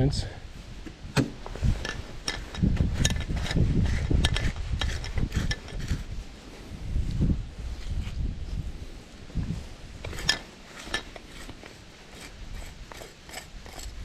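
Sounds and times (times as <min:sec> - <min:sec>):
chainsaw parts clicking and knocking: 0:01.2 - 0:06.0, 0:10.0 - 0:11.8.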